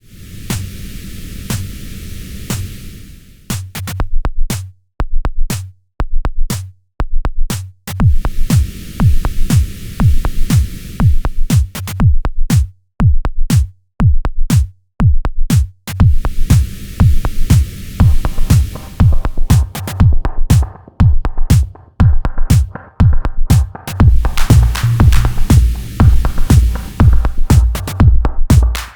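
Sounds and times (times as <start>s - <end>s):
filtered noise wash: 0.0s - 3.9s, 8.0s - 12.0s, 16.0s - 20.8s, 23.8s - 28.9s
drum machine kick and hi-hat beat: 3.5s - 28.9s.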